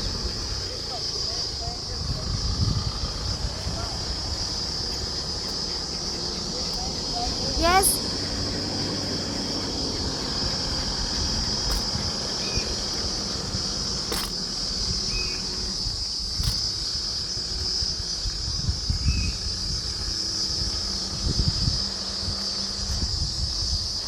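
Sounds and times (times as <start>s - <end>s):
insects buzzing: 0.0s - 24.0s
low rumble: 1.5s - 6.6s.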